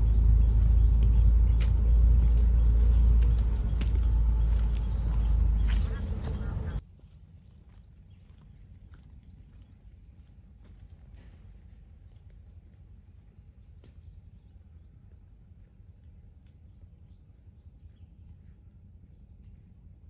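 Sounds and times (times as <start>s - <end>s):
faint low background rumble: 0.0s - 6.8s.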